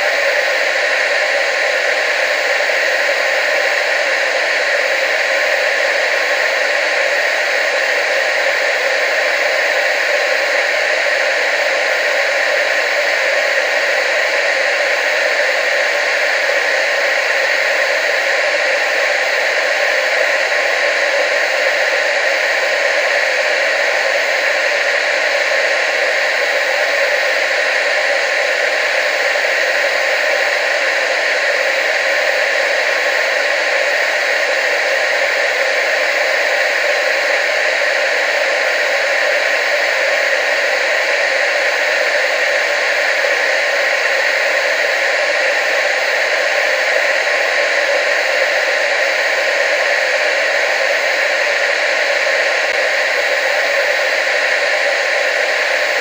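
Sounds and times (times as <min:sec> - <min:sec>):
television static hiss: 0:00.0 - 0:56.0.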